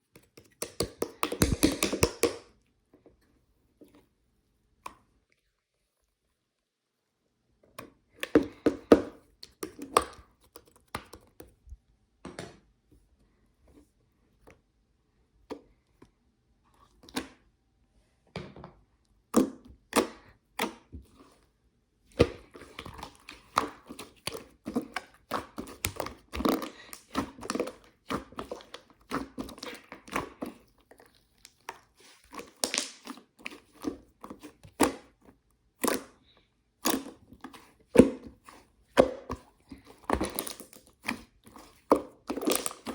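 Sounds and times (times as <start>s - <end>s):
slime popping and crackling: 0.9s - 2.4s, 31.4s - 33.8s, 40.1s - 41.2s, 41.8s - 42.9s.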